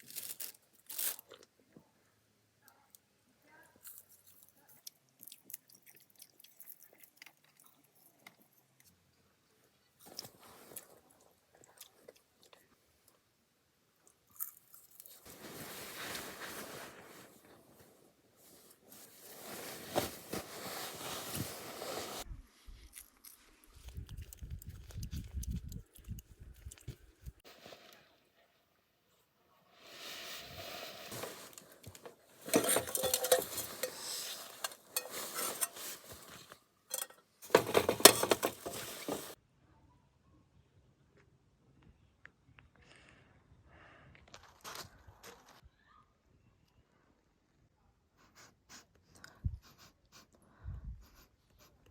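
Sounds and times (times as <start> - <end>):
crunchy chewing: 3.8 - 9.0, 14.0 - 15.3
rustling hiss: 18.7 - 22.2
dishes and cutlery clattering: 32.4 - 39.4.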